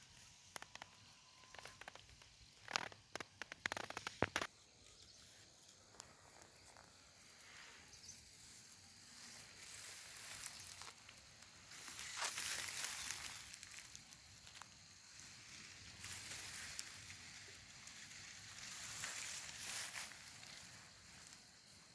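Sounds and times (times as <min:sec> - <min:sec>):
dry crackling rustling clicks: 0:00.2 - 0:04.5, 0:10.2 - 0:14.8
soft hiss: 0:03.2 - 0:21.9.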